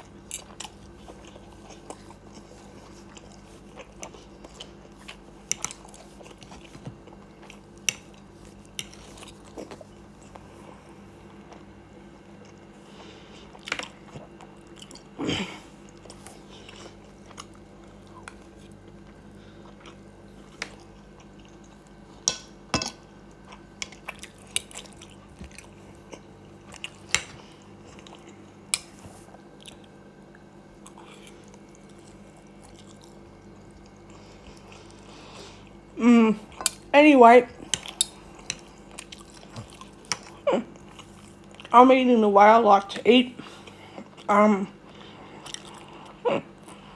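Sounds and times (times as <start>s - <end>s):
person chewing and biting: 23.3s - 35.9s, 37.6s - 41.7s, 45.3s - 46.9s.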